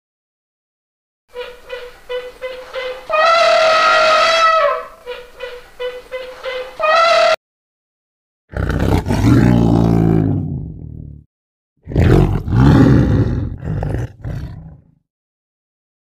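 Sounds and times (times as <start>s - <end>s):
lion roaring: 8.5s - 11.2s, 11.8s - 15.0s
lion grunting calls: 11.9s - 14.9s.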